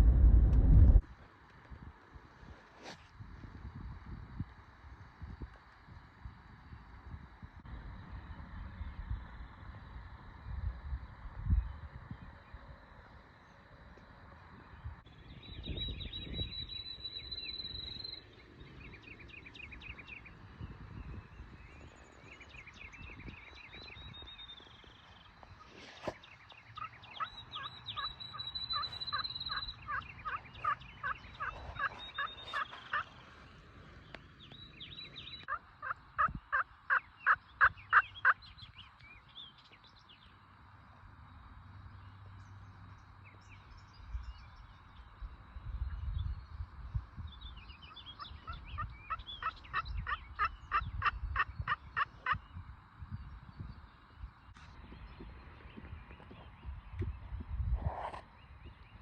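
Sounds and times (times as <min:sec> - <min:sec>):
songbirds whistling and trilling: 0:14.5 - 0:40.5, 0:41.2 - 0:59.0
turkey yelping: 0:26.8 - 0:33.1, 0:35.5 - 0:38.4, 0:48.4 - 0:52.4.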